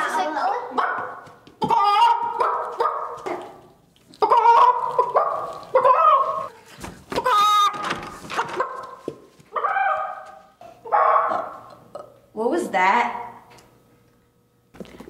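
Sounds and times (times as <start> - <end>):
person imitating chicken squawks: 1.6 - 2.4, 4.2 - 6.6.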